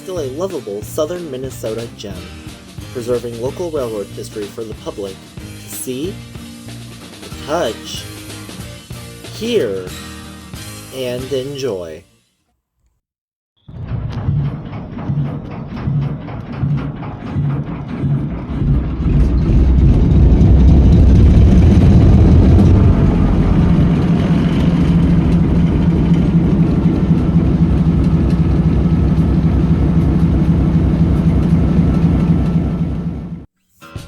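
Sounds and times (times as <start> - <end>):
diesel locomotive engine drone: 14.0 - 33.5.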